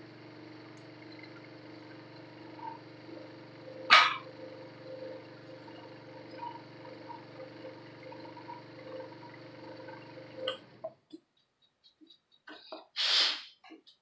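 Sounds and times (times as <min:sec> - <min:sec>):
scroll saw humming: 0:00.0 - 0:10.9.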